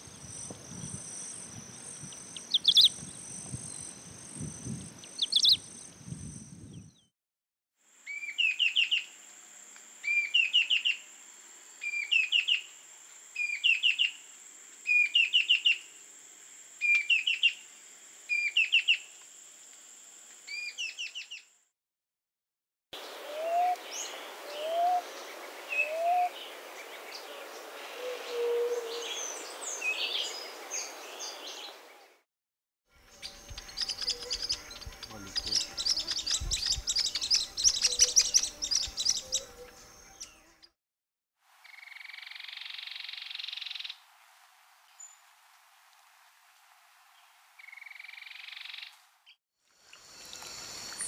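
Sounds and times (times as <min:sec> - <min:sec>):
bird singing rising notes: 0:00.0 - 0:07.1, 0:33.1 - 0:40.7
birds chirping: 0:00.0 - 0:07.1, 0:33.1 - 0:40.7.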